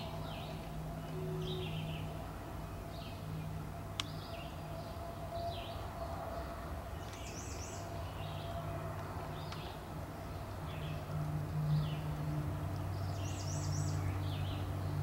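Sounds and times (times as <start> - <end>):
birds chirping: 0.0 - 11.1, 12.9 - 15.0.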